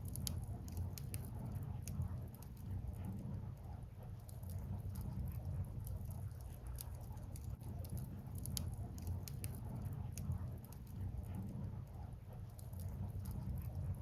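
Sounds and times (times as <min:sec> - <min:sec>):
firewood crackling and popping: 0:00.0 - 0:02.7, 0:05.8 - 0:11.0
fire low rumble: 0:00.0 - 0:14.0.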